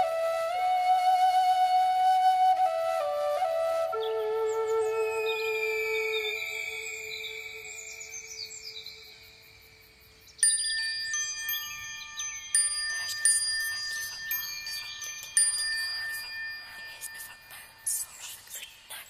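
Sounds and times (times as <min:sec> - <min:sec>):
wind chimes ringing: 0:05.6 - 0:19.0.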